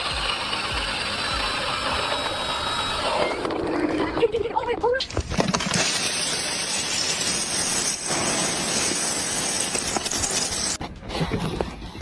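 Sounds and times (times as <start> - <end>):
ice crunching and crackling: 5.1 - 10.8.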